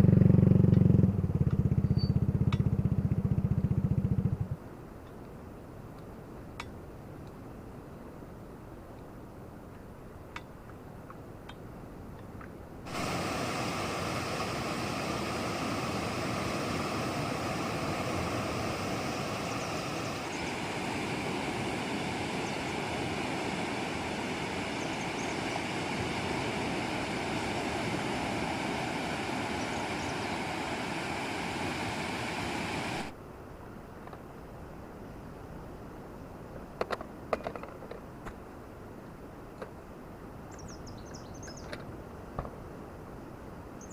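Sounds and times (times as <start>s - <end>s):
outdoor rushing noise: 12.9s - 33.1s.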